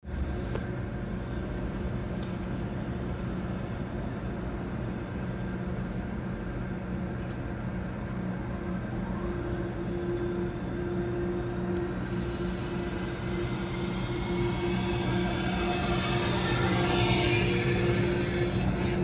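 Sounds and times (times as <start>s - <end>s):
electric train humming: 0.0s - 19.0s
faint rising whine: 0.1s - 19.0s
high steady tone: 9.2s - 19.0s.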